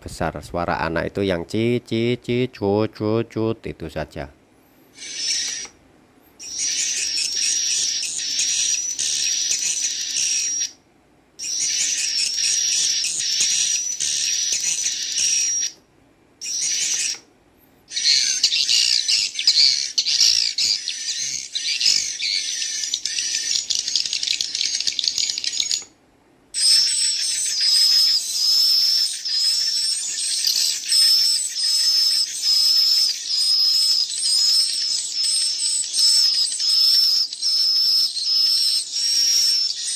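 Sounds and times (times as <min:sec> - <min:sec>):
swiftlet chicks chirping: 0:04.9 - 0:05.8, 0:06.4 - 0:10.8, 0:11.4 - 0:15.8, 0:16.4 - 0:17.2, 0:17.9 - 0:25.9, 0:26.6 - 0:39.9
adult swiftlet calls: 0:05.0 - 0:05.7, 0:06.4 - 0:10.7, 0:11.4 - 0:15.7, 0:16.4 - 0:17.2, 0:17.9 - 0:25.8, 0:26.6 - 0:39.9.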